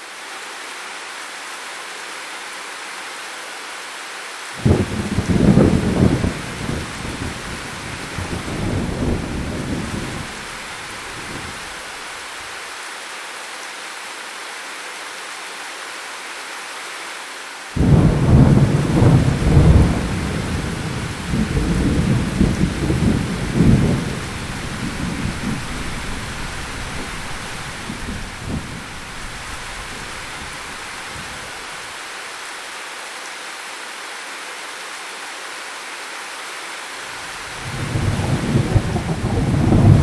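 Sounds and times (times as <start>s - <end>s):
steady rain falling: 0.0s - 40.0s
rolling thunder: 4.6s - 11.8s, 17.8s - 31.6s, 37.5s - 40.0s.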